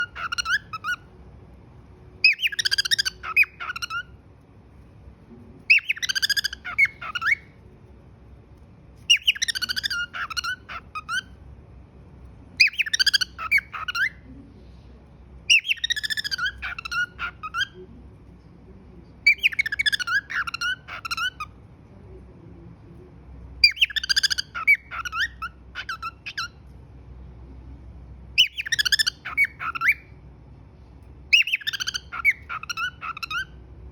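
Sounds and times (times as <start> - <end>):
cockatiel whistling and chirping: 0.0 - 1.0, 2.2 - 4.1, 5.7 - 7.5, 9.0 - 11.3, 12.6 - 14.2, 15.5 - 17.7, 19.3 - 21.5, 23.6 - 26.6, 28.4 - 30.1, 31.3 - 33.6.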